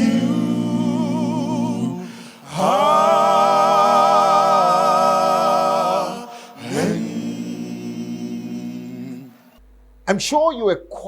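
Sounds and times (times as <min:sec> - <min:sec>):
gospel singer holding notes: 0:00.0 - 0:10.9.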